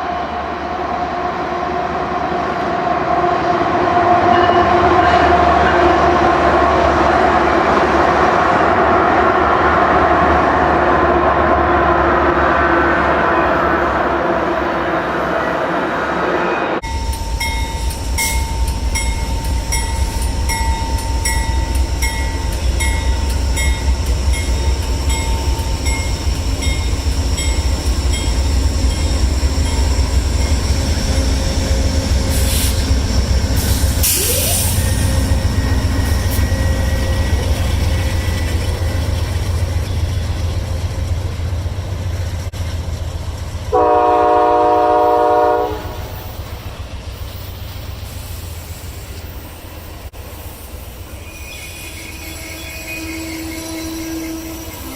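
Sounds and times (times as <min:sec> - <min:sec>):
train rumbling past: 0:00.0 - 0:54.9
locomotive horn: 0:03.0 - 0:07.9, 0:43.7 - 0:46.2, 0:52.0 - 0:54.9
bell ringing: 0:16.8 - 0:30.6.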